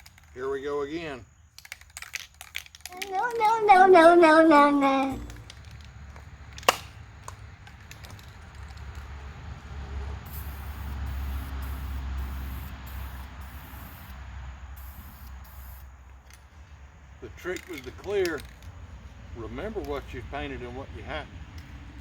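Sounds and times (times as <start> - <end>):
aerosol spray can hissing: 10.3 - 14.2, 14.8 - 15.9.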